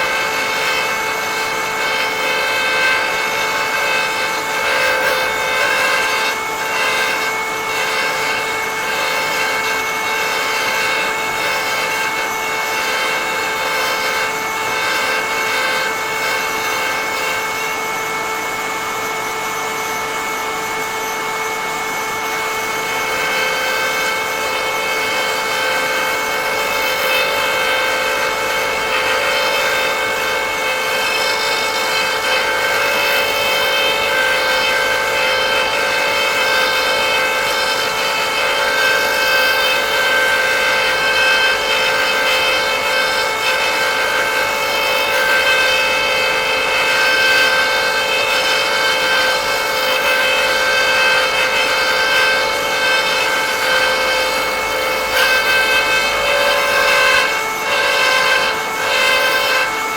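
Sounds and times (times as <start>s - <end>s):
cutter rasping into wood: 0.0s - 18.2s, 22.2s - 59.9s
power tool motor running: 0.0s - 59.9s.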